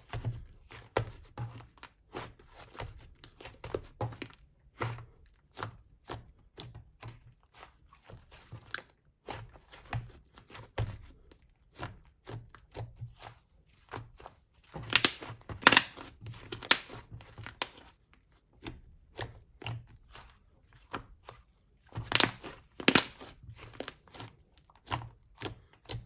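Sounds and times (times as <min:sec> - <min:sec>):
slime squished by hand: 0:11.7 - 0:18.0, 0:18.6 - 0:26.0.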